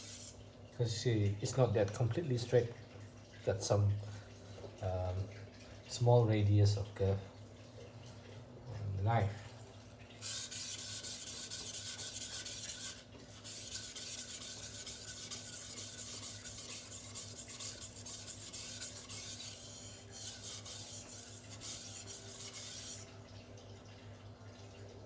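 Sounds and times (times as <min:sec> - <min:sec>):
cleaver rasping on a waterstone: 0:00.0 - 0:00.4, 0:10.2 - 0:23.1.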